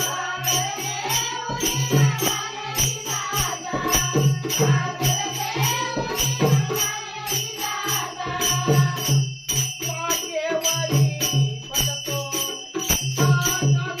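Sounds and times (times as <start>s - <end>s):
jingling percussion beat: 0.0s - 14.0s.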